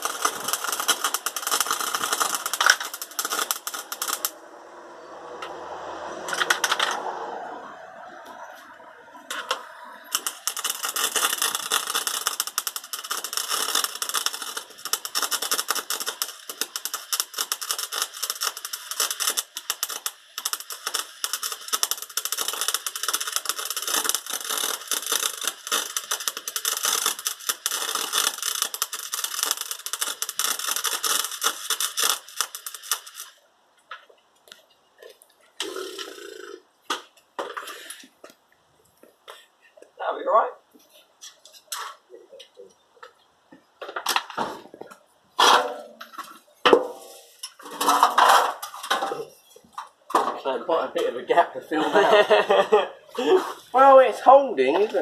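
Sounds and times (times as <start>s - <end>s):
welding arc crackling: 0.0s - 4.7s, 6.3s - 7.0s, 8.6s - 33.5s, 34.4s - 39.0s.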